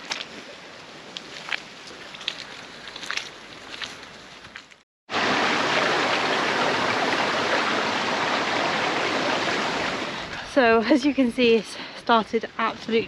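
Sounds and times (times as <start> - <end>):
rush of water: 5.1 - 10.7.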